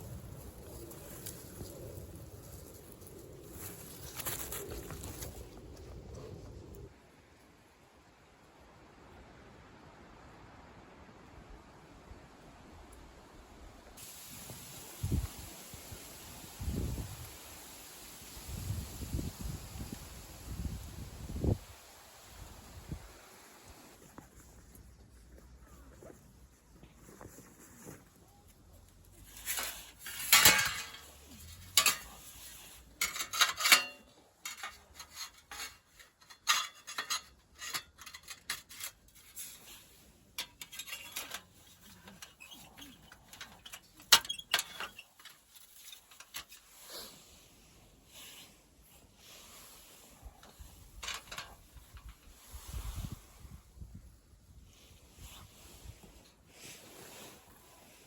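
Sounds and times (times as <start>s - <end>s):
metal cookware clinking and clattering: 29.6s - 32.3s, 33.0s - 38.9s, 40.4s - 42.4s.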